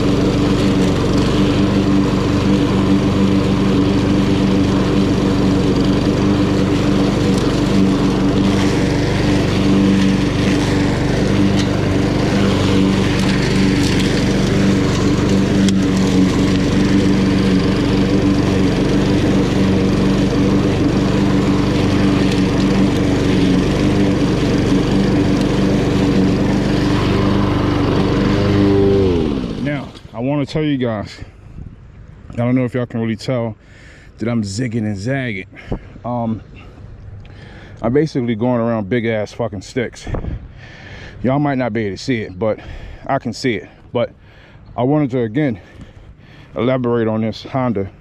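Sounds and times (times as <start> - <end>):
lawn mower engine running: 0.0 - 30.8, 39.8 - 48.0.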